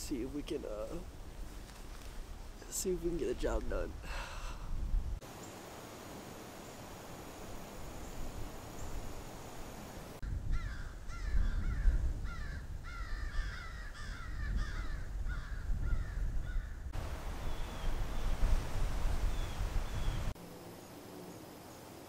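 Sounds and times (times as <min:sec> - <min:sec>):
wind rumbling on microphone: 0:00.0 - 0:05.2, 0:06.8 - 0:20.4
birds calling: 0:07.8 - 0:18.4, 0:19.2 - 0:20.4.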